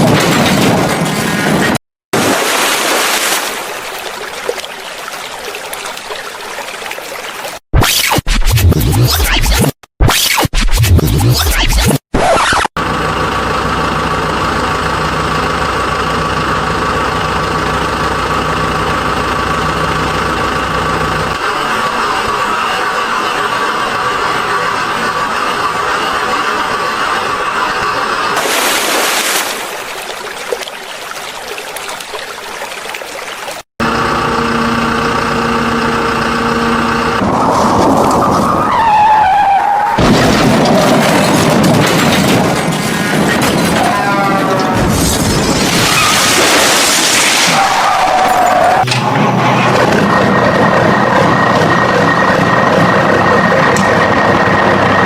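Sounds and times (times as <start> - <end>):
engine idling: 12.8 - 28.4, 33.8 - 37.2, 48.8 - 55.0
tyres skidding screech: 33.8 - 55.0.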